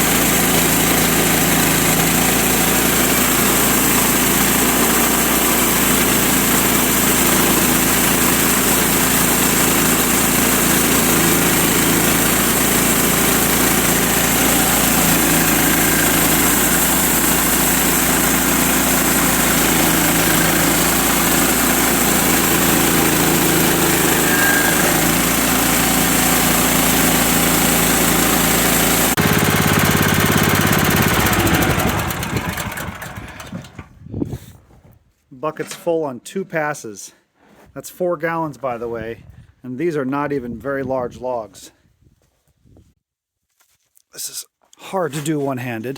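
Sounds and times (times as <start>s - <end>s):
sawmill cutting a log: 0.0s - 33.8s.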